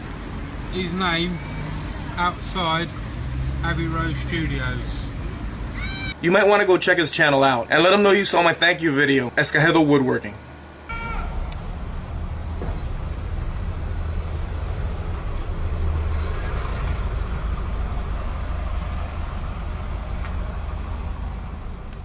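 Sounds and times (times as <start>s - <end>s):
street noise: 0.0s - 22.0s
heavy vehicle engine running: 10.9s - 22.0s.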